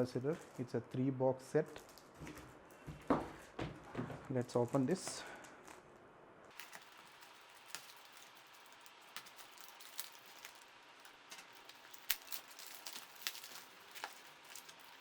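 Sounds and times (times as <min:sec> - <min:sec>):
packaging clicks and snaps: 0:06.5 - 0:15.0
packaging rustling: 0:06.5 - 0:15.0.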